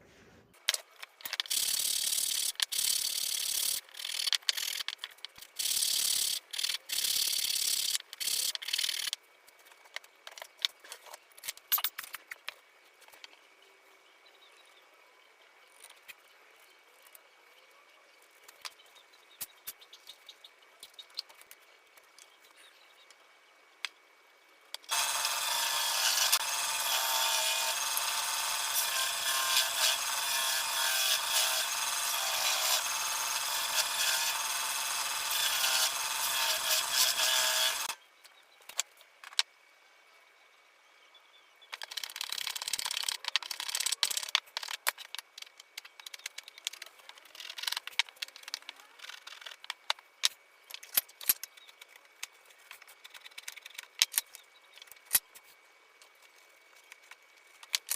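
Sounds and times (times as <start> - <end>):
rasping tool on wood: 24.9 - 38.0.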